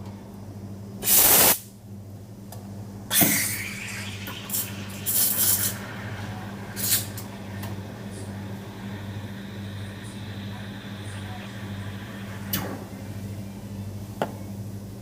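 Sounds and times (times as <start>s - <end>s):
steady low hum: 1.7s - 15.0s
coffee machine hissing: 3.1s - 14.0s.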